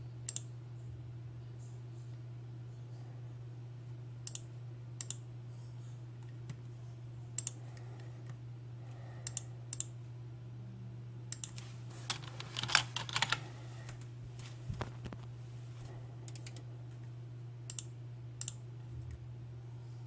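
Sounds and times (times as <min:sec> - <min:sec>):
steady low hum: 0:00.0 - 0:20.0
keyboard and mouse clicks: 0:11.4 - 0:14.1, 0:16.3 - 0:16.6.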